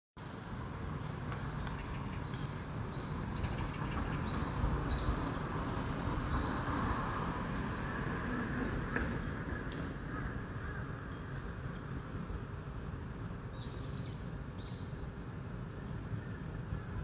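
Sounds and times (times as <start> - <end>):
small birds chirping: 1.3 - 11.8.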